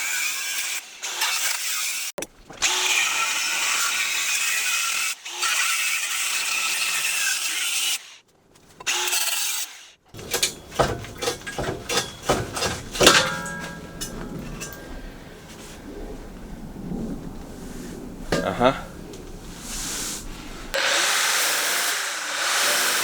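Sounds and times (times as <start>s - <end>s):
knocks and clatters: 10.2s - 20.8s
angle grinder cutting metal: 20.7s - 23.0s.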